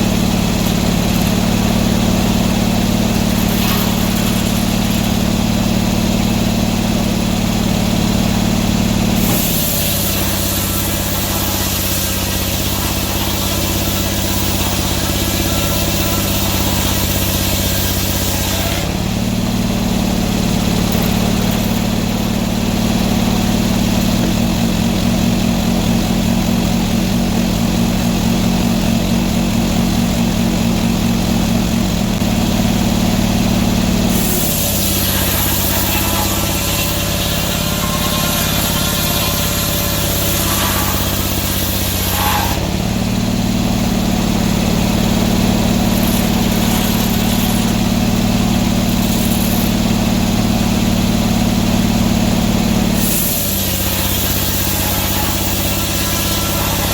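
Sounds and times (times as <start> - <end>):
sawmill engine running: 0.0 - 56.9
high hiss of cutting: 9.1 - 18.9, 34.1 - 42.7, 45.5 - 49.9, 53.0 - 56.9.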